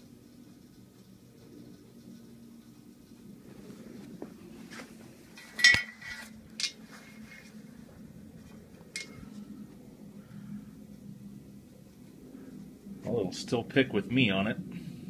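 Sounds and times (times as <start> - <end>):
steady low hum: 0.0 - 15.0
sharp metallic clanks: 5.4 - 6.8, 8.9 - 9.3.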